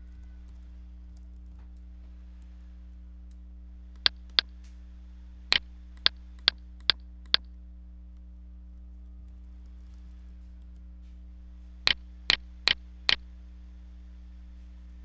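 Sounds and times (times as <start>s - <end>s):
low electrical hum: 0.0s - 15.0s
sharp clicks: 3.3s - 4.5s, 5.5s - 7.5s, 11.9s - 13.2s.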